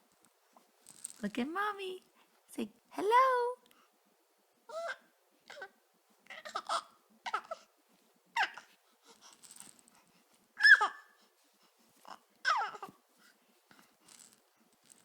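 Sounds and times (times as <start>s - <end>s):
little girl giggling and squealing: 10.6s - 11.1s.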